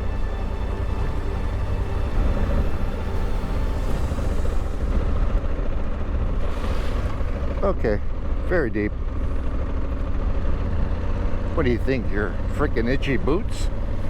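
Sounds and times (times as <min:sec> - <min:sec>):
wind and road noise: 0:00.0 - 0:14.0
motorcycle engine running: 0:01.8 - 0:14.0.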